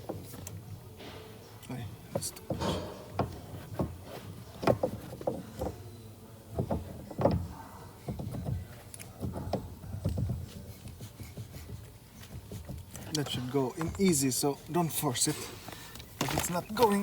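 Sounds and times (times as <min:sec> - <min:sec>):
clunks and knocks on steering shaft: 0:02.1 - 0:05.8, 0:06.6 - 0:13.1.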